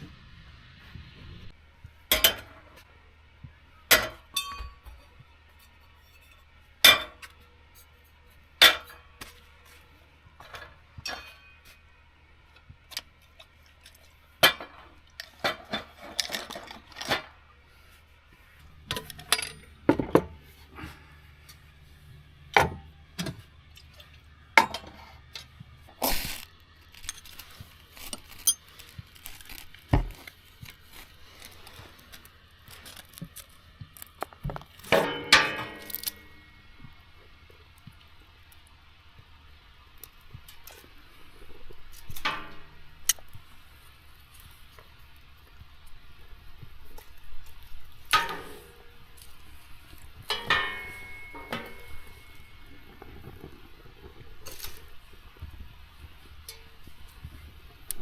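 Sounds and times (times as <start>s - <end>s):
pots and utensils clinking: 4.0s - 5.0s, 34.9s - 36.5s, 50.2s - 53.2s.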